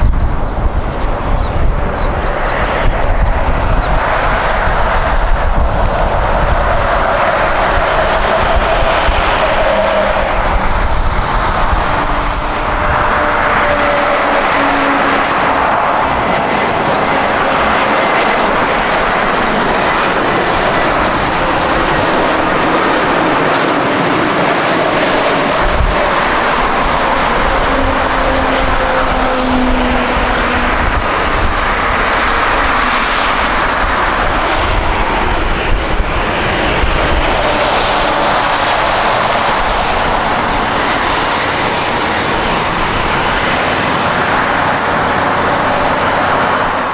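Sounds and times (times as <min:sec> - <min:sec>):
faint falling tones: 0:08.6 - 0:11.0
jet engines roaring: 0:09.6 - 0:46.9.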